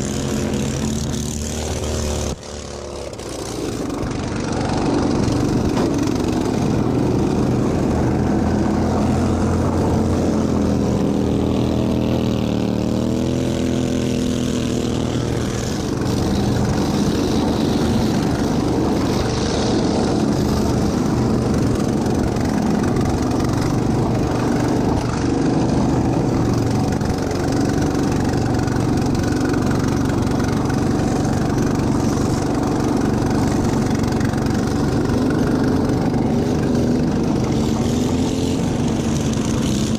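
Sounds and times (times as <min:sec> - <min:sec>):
lawn tractor engine running hard: 0:00.0 - 0:39.9.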